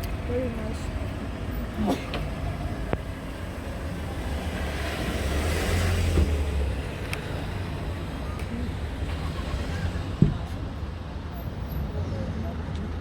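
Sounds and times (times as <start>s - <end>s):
low traffic rumble: 0.0s - 13.0s
vehicle passing by: 4.0s - 7.8s.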